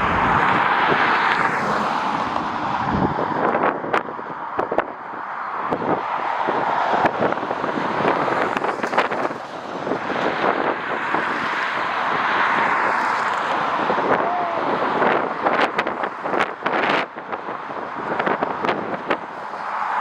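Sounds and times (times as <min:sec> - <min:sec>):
jet airliner engine roar: 0:00.0 - 0:04.3
wind buffeting microphone: 0:00.0 - 0:20.0.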